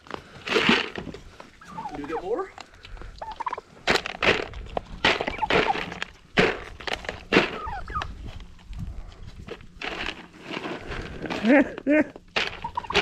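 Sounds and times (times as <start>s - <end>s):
turkey call: 1.6s - 2.4s, 3.2s - 3.6s, 5.2s - 5.8s, 7.6s - 8.1s, 11.4s - 13.0s.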